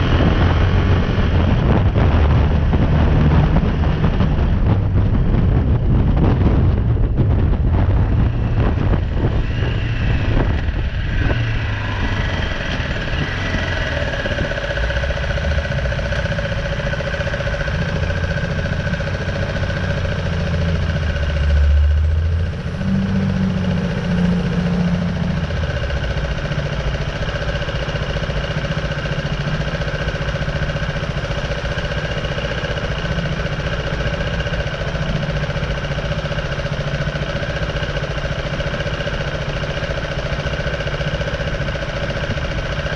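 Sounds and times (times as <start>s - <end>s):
wind noise: 0.0s - 26.5s
motorcycle engine idling: 0.0s - 42.9s.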